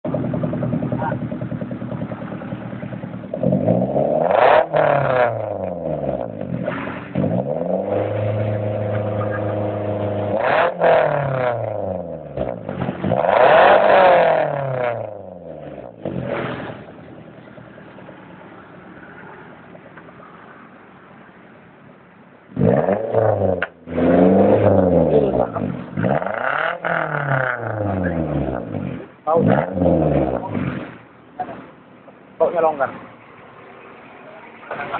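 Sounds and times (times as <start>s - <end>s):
car engine revving: 0.0s - 17.8s, 22.5s - 31.8s.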